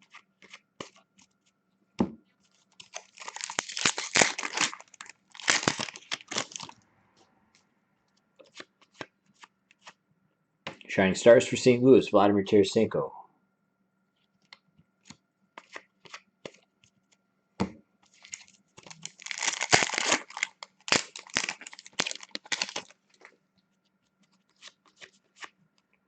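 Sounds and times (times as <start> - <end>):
card pack clicks and rustles: 0.0 - 1.0, 2.5 - 6.8, 18.1 - 23.4, 24.3 - 25.6
wrapper ripping and crinkling: 2.7 - 6.8, 18.2 - 23.3.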